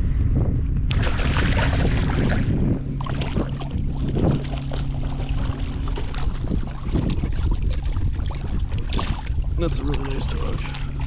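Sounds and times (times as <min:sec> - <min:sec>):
low steady hum: 0:00.0 - 0:11.0
wind buffeting microphone: 0:00.0 - 0:11.0
water sloshing against kayak: 0:00.9 - 0:11.0.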